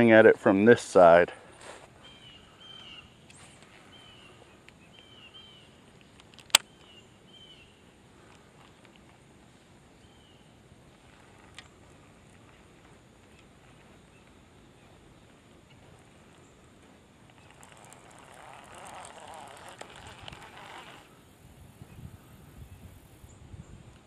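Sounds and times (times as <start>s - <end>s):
bird chirping: 2.0s - 7.8s
sharp click: 6.0s - 6.8s.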